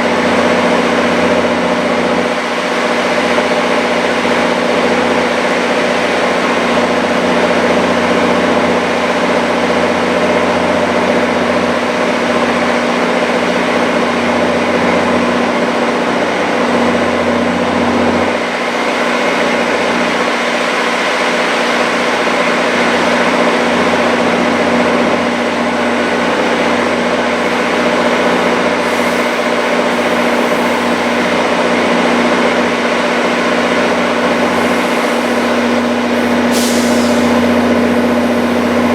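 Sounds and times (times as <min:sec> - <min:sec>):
train engine droning: 0:00.0 - 0:38.9
steady hum: 0:24.5 - 0:38.9.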